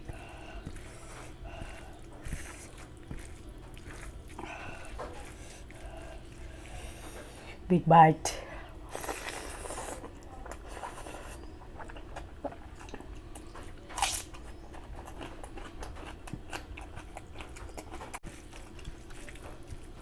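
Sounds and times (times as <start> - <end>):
mouth chewing food: 0.0 - 7.6, 8.7 - 20.0
sharp crunching bite: 13.9 - 14.4.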